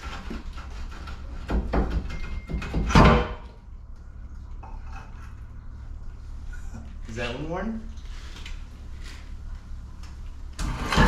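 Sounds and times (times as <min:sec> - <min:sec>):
steady low hum: 0:02.7 - 0:11.0.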